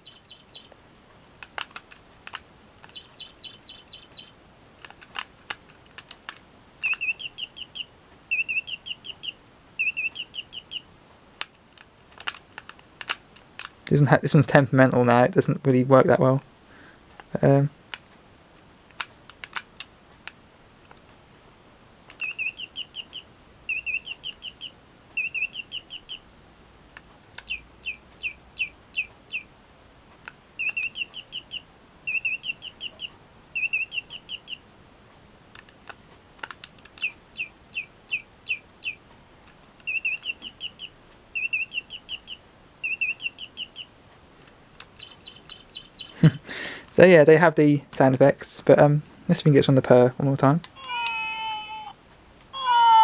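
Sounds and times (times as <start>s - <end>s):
toy bird electronic chirps: 0.0s - 0.7s, 2.9s - 4.4s, 6.8s - 10.8s, 22.2s - 26.2s, 27.4s - 29.5s, 30.6s - 34.6s, 37.0s - 39.0s, 39.9s - 43.9s, 45.0s - 46.4s
sharp clicks: 27.4s - 29.4s.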